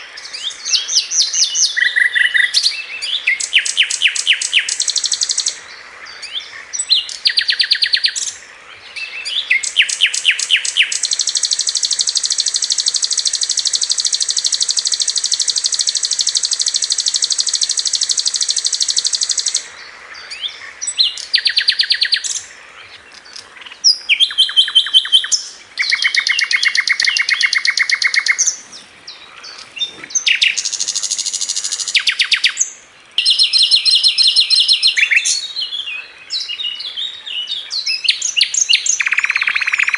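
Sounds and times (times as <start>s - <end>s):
flycatcher singing high trills: 0.2s - 5.6s, 9.1s - 19.7s, 23.9s - 28.6s, 29.5s - 35.7s, 37.9s - 39.9s.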